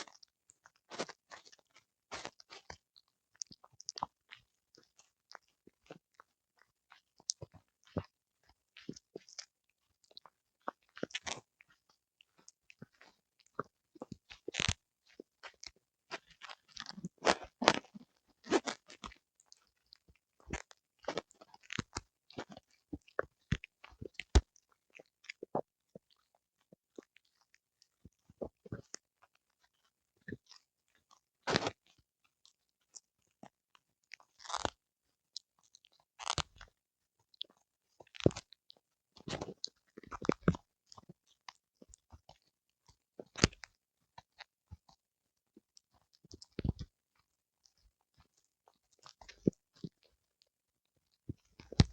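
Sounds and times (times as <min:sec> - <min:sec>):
dog chewing and crunching: 0:00.0 - 0:06.3, 0:10.1 - 0:26.2, 0:34.1 - 0:34.8, 0:35.7 - 0:36.7, 0:37.4 - 0:38.6, 0:39.2 - 0:42.5, 0:43.2 - 0:44.5.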